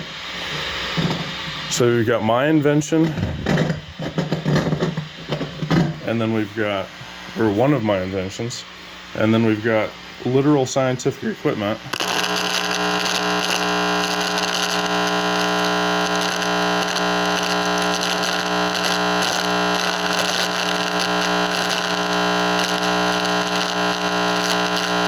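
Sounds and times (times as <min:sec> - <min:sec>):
electronic buzz and static: 0:06.1 - 0:25.0.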